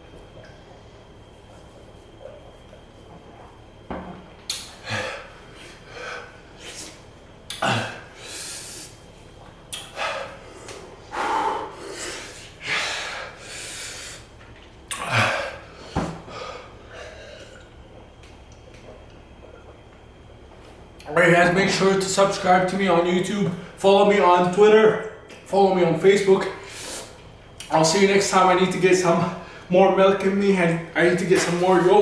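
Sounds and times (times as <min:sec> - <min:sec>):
man breathing hard: 0:04.7 - 0:09.0, 0:09.8 - 0:14.3, 0:14.9 - 0:17.6.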